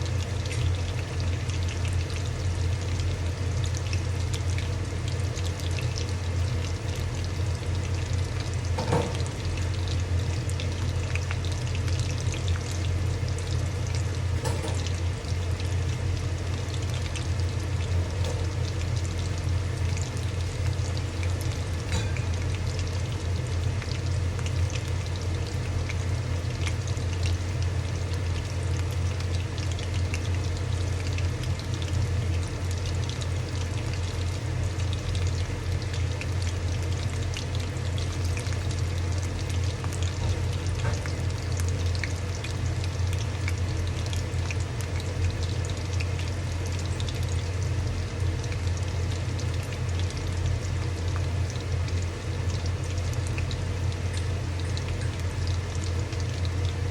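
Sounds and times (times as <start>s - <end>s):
constant low hum: 0.0s - 56.9s
food frying in hot oil: 0.0s - 56.9s.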